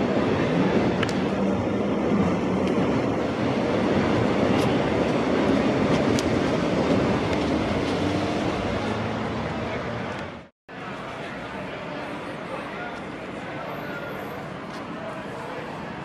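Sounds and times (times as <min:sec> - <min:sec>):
train wheels rumbling on rail: 0:00.0 - 0:10.4.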